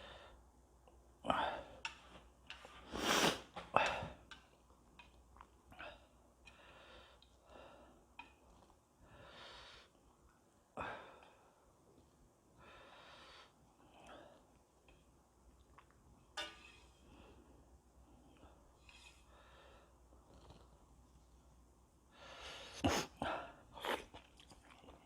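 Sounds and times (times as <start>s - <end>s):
person slurping noodles: 2.9s - 3.5s, 22.8s - 23.2s.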